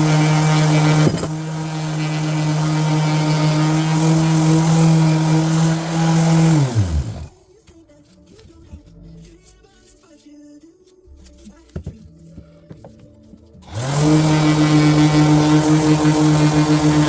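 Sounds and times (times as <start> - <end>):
power tool motor running: 0.0 - 7.4, 13.6 - 17.0.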